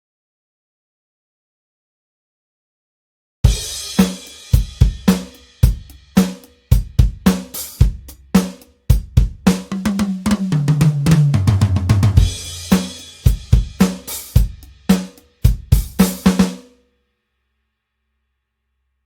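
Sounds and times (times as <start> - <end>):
tom fill: 3.5 - 16.7
drum kit groove: 3.5 - 16.8.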